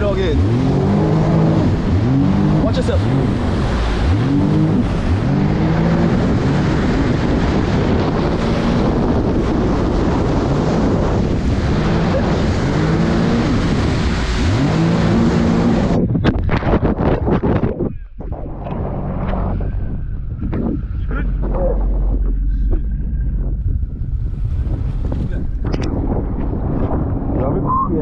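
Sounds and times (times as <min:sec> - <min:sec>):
jet ski engine revving: 0:00.0 - 0:17.6, 0:18.2 - 0:27.4
wind and water spray noise: 0:00.0 - 0:17.8.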